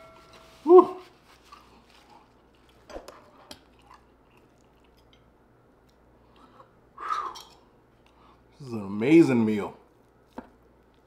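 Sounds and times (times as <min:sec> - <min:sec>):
person chewing food: 0:01.4 - 0:08.4.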